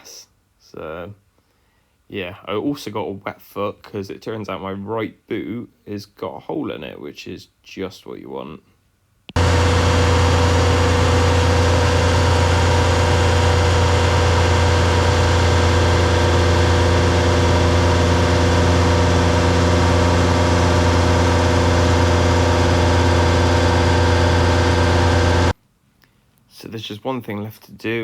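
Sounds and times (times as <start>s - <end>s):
tanker engine and pump drone: 9.4s - 25.5s.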